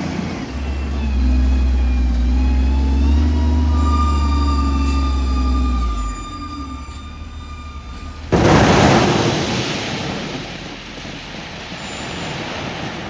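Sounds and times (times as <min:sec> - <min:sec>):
loader engine whining: 0:00.0 - 0:13.0
load crashing into truck bed: 0:08.3 - 0:12.7.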